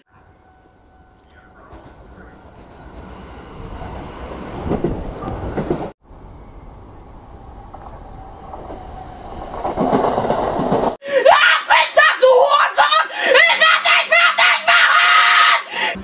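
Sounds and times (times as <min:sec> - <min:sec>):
electric train running: 0:00.2 - 0:11.0.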